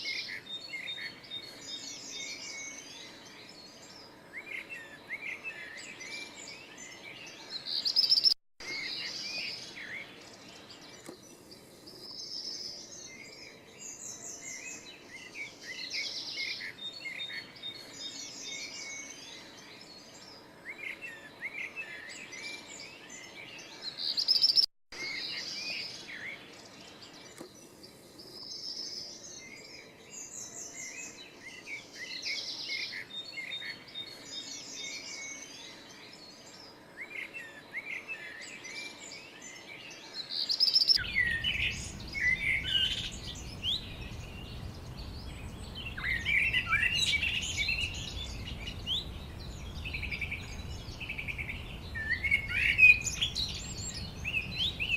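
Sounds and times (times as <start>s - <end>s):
songbirds chirping and twittering: 0.0s - 54.9s
low rumble: 41.0s - 52.2s.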